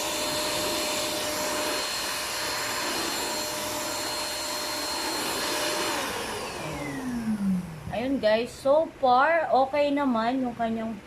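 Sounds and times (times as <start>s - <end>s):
stick vacuum motor whine: 0.0s - 8.0s.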